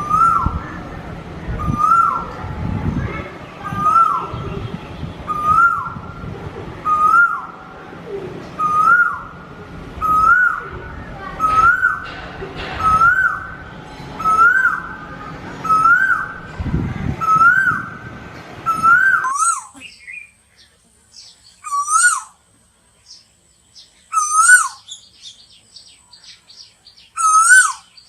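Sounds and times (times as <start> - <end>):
bird whistled call: 5.3 - 6.0, 6.8 - 7.5, 8.6 - 9.3, 10.0 - 10.7, 11.4 - 12.0, 14.2 - 15.0, 15.6 - 16.4, 18.7 - 20.4, 21.6 - 22.4, 24.1 - 25.4, 26.2 - 28.0.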